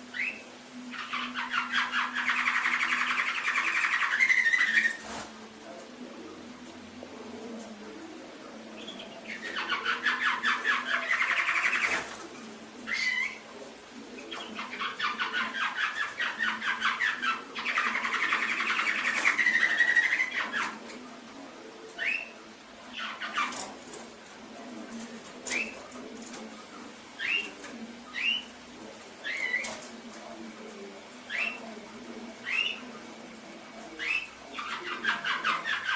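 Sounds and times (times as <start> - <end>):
canary singing trills: 0.0 - 5.1, 8.7 - 13.5, 14.1 - 20.8, 22.0 - 23.7, 27.2 - 28.6, 29.2 - 29.8, 31.2 - 31.8, 32.4 - 32.9, 33.9 - 35.9.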